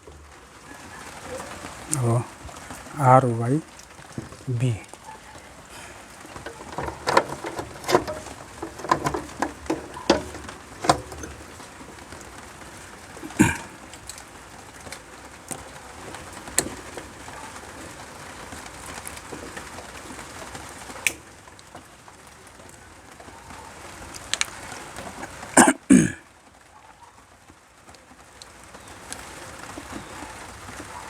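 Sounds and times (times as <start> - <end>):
clicks and knocks of tools: 6.2 - 11.7
loud clatter: 6.3 - 11.8.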